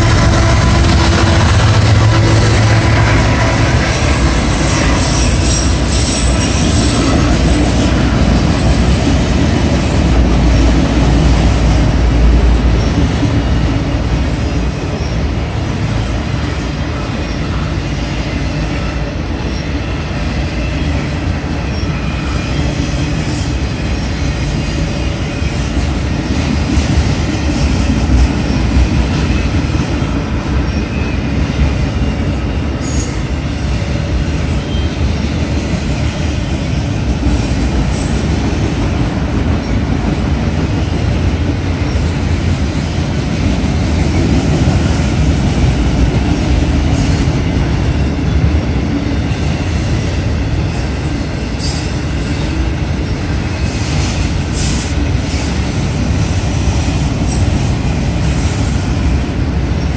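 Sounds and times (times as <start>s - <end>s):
freight train wheels on rail: 0.0s - 59.9s.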